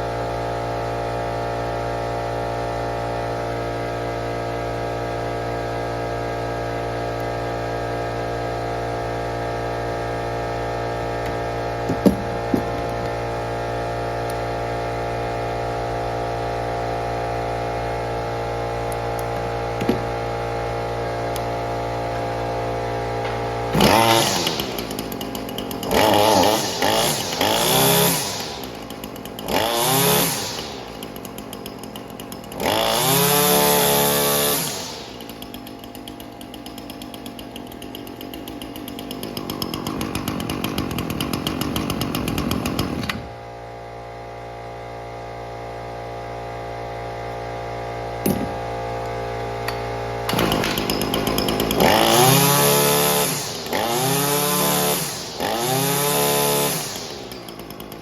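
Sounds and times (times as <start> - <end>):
string trimmer engine revving and idling: 0.0 - 58.0.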